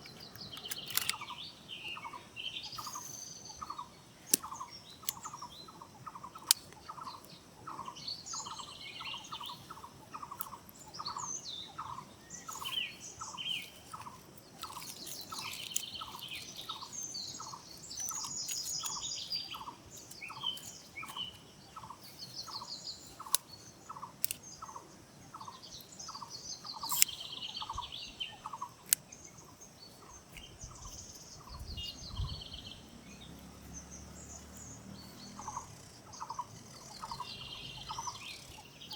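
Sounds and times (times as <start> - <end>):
sharp clicks: 0.0 - 2.0, 3.7 - 5.6, 13.9 - 21.2, 23.2 - 24.8, 26.8 - 27.7, 28.8 - 29.1
birds chirping and trilling: 0.0 - 38.9.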